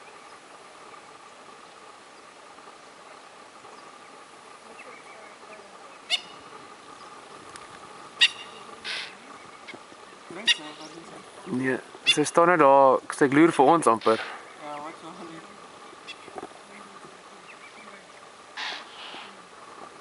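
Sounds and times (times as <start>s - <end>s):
impala alarm snorts: 8.4s - 9.2s, 14.0s - 14.5s, 18.6s - 19.4s.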